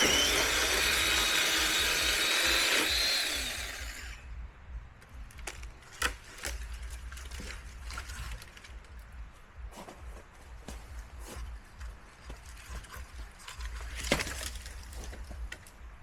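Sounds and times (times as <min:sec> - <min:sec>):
electric chainsaw cutting wood: 0:00.0 - 0:04.2.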